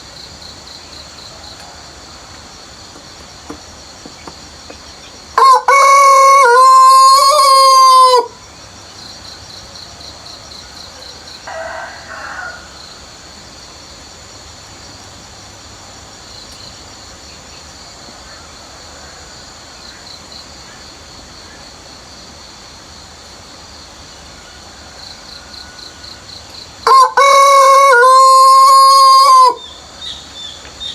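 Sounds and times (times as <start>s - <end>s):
crickets chirring: 0.0s - 30.9s
rooster crowing: 5.4s - 8.4s, 11.0s - 13.0s, 24.5s - 29.7s.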